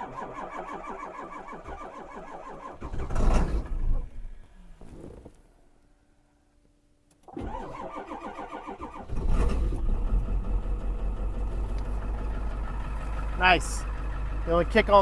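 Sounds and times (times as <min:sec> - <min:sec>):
engine starter cranking: 0:00.0 - 0:04.2, 0:07.2 - 0:15.0
engine running on high idle: 0:09.1 - 0:15.0.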